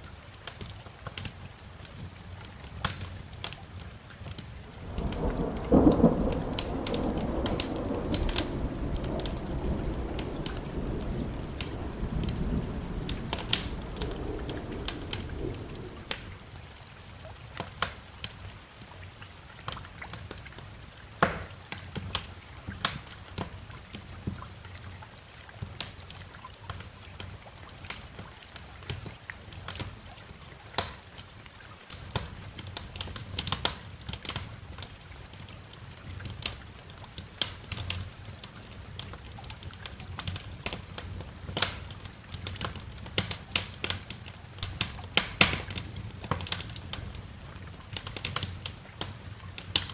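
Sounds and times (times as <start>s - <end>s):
soft rain hiss: 0.0s - 49.9s
wood fire crackling: 0.0s - 49.9s
thunder rumbling: 4.4s - 17.0s.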